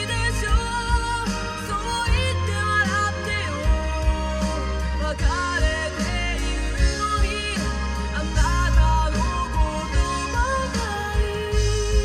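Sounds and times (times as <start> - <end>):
pop song on car audio: 0.0 - 12.0.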